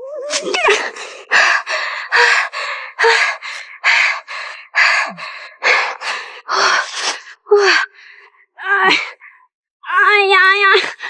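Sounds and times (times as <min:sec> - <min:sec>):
woman panting hard: 0:00.4 - 0:08.3.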